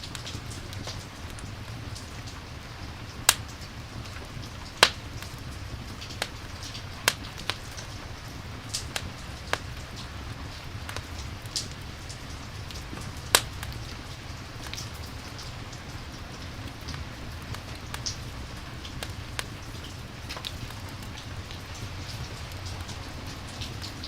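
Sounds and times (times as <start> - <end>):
steady rain: 0.0 - 24.0
wood fire crackling: 0.0 - 24.0.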